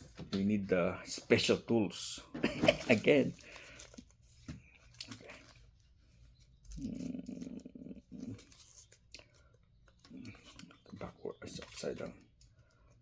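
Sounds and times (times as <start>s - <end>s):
plastic packaging clicks and scrapes: 2.4s - 6.9s, 8.2s - 13.0s.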